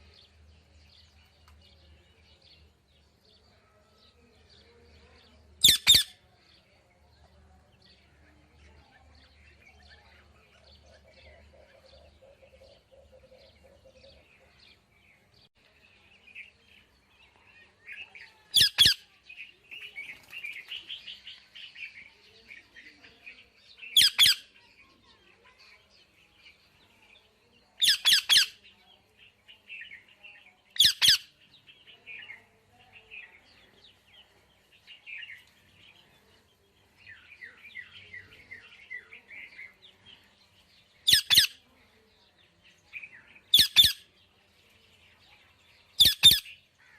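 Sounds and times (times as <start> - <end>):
parrot chattering chirps: 5.6 - 6.1, 30.8 - 31.2, 41.1 - 41.6, 43.5 - 44.0, 46.0 - 46.5.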